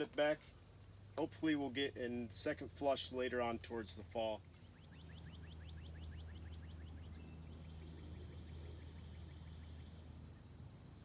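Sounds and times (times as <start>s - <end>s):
steady low hum: 0.0s - 11.0s
high insect drone: 4.3s - 11.0s
small bird chirping rapidly: 4.5s - 11.0s.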